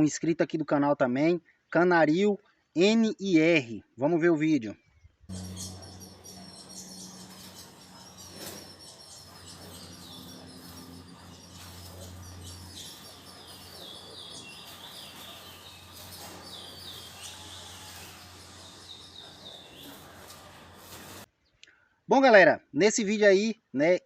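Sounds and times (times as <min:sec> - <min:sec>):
birds chirping: 0:04.8 - 0:21.6.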